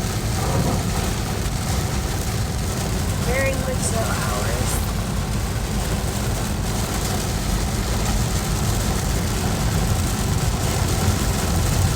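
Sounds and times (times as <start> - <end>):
engine and road rumble: 0.0 - 11.9
rain and wet tyres hissing: 0.0 - 11.9.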